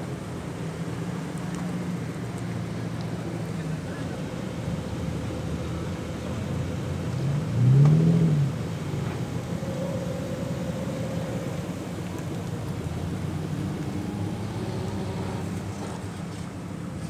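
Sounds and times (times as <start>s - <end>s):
car engines running: 0.0s - 17.0s
car engine revving: 4.6s - 16.2s.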